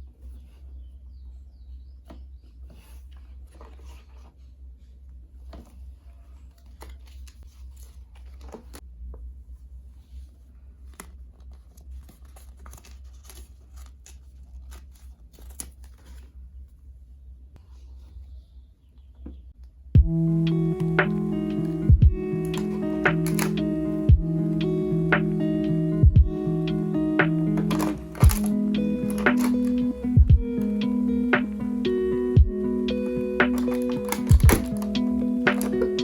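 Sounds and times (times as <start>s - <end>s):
steady low hum: 19.9s - 33.6s
plastic packaging crinkling and tearing: 22.4s - 23.6s, 27.5s - 30.0s, 33.4s - 36.0s.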